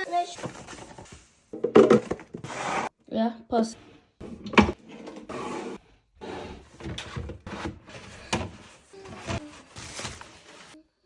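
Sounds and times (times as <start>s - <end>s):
household items knocking and scraping: 0.3s - 2.9s, 4.2s - 10.2s.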